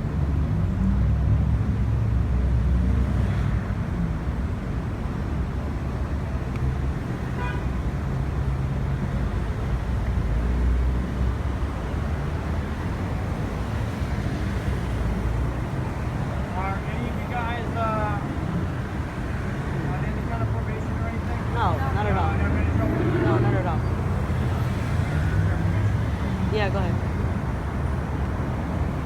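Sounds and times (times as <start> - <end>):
road traffic noise: 0.0 - 29.0
motor vehicle rumbling: 7.9 - 29.0.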